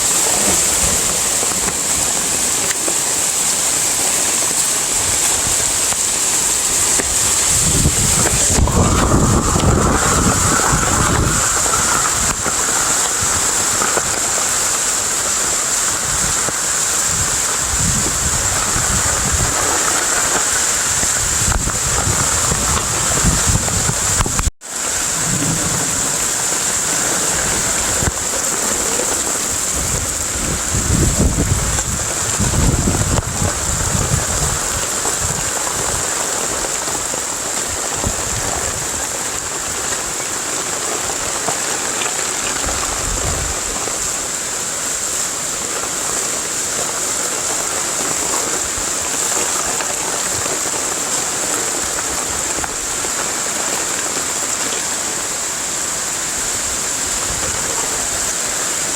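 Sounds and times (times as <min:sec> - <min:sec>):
heavy rain falling: 0:00.0 - 0:58.9
low rumbles: 0:07.0 - 0:15.4.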